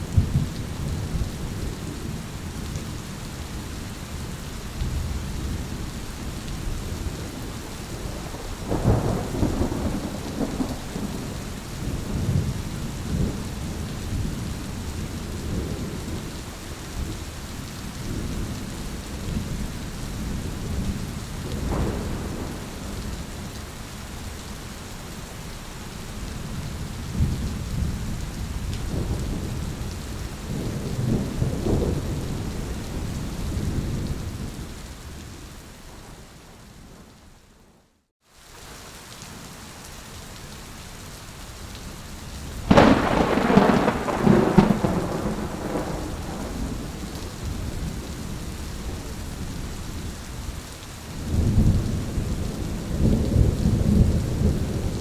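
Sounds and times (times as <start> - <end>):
rolling thunder: 0.0 - 2.2, 6.6 - 16.2, 20.3 - 23.5, 27.1 - 34.7, 42.6 - 49.7, 51.2 - 55.0
steady rain: 0.0 - 55.0.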